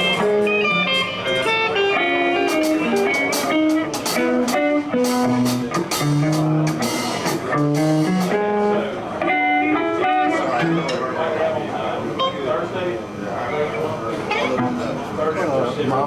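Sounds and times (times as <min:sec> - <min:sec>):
blues band playing: 0:00.0 - 0:11.4, 0:14.1 - 0:15.0
guitar picking single notes: 0:00.0 - 0:11.4, 0:14.2 - 0:15.0
cymbal and drum hits: 0:02.5 - 0:08.5.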